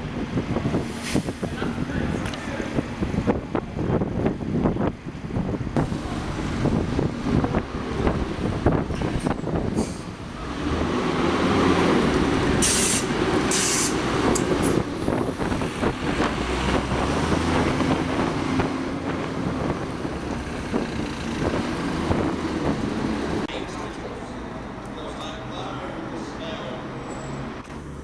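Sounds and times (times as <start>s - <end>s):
large vehicle rumbling: 0.0s - 28.0s
short hisses: 12.6s - 14.0s.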